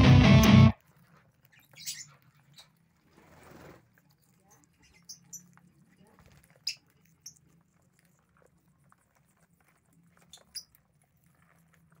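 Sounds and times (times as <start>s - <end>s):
lovebirds chirping: 1.4s - 3.0s, 4.3s - 7.5s.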